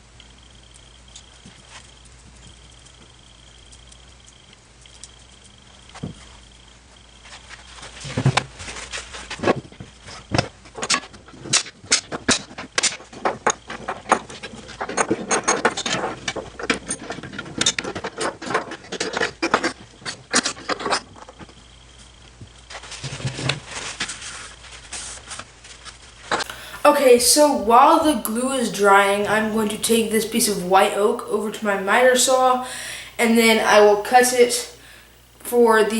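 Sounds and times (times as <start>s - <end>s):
faint high whine: 20.6s - 35.9s.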